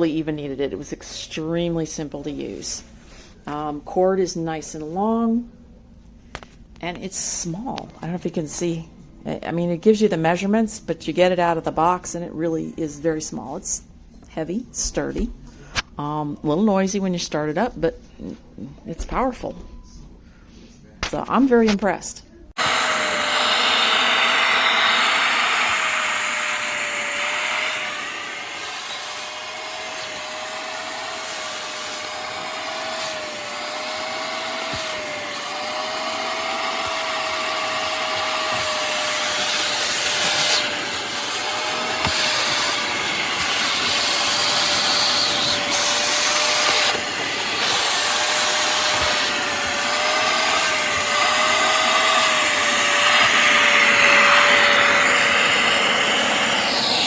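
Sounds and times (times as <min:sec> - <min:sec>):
spot cleaner suction motor humming: 0:22.6 - 0:57.0.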